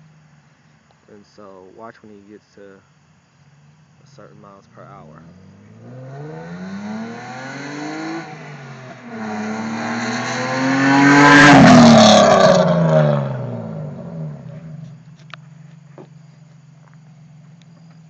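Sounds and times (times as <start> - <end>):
car accelerating hard: 4.7 - 18.0.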